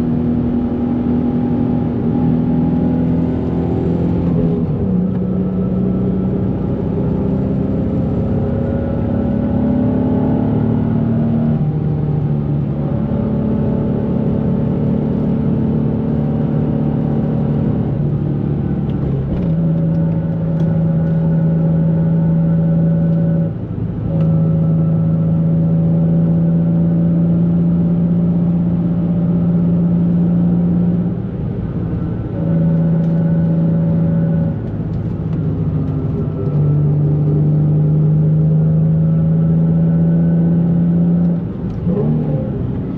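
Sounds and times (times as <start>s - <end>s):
car engine running: 10.6s - 42.9s.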